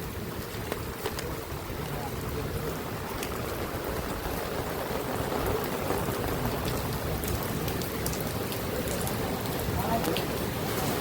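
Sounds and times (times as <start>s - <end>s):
steady rain falling: 0.0s - 11.0s
sharp raindrop ticks: 0.3s - 10.5s
low rumble: 1.3s - 8.2s.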